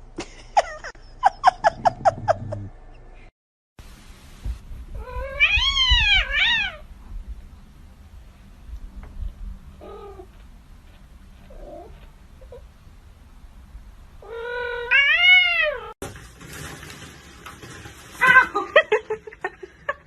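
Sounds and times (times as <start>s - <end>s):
cat meowing: 5.0s - 6.8s, 14.2s - 15.9s.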